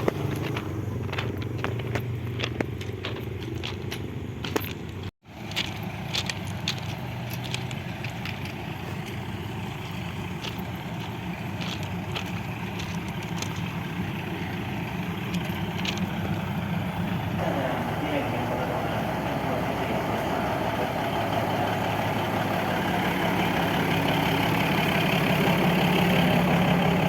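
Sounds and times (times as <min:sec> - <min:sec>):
vehicle engine drone: 0:00.0 - 0:27.0.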